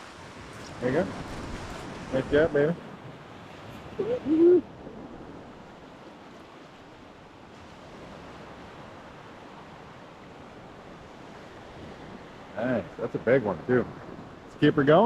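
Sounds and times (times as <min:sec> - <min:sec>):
waves breaking on beach: 0:00.0 - 0:15.0
person speaking: 0:04.0 - 0:04.6.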